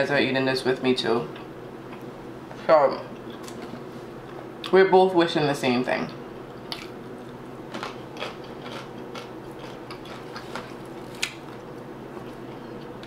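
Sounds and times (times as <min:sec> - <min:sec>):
person chewing crunchy food: 0:06.5 - 0:13.0.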